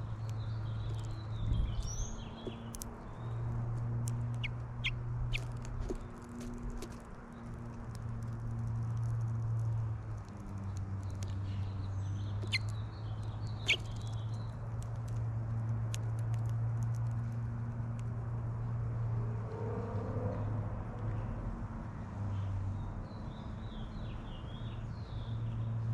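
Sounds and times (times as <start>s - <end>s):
finch chirps: 4.3s - 6.0s, 11.1s - 14.6s
light clicks and taps: 12.4s - 18.1s.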